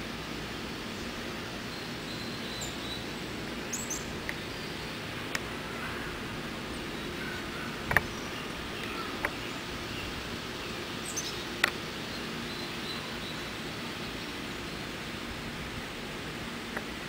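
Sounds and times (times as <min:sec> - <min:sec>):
outdoor background noise: 0:00.0 - 0:17.0
faint bird chirps: 0:03.7 - 0:05.0, 0:05.7 - 0:11.5.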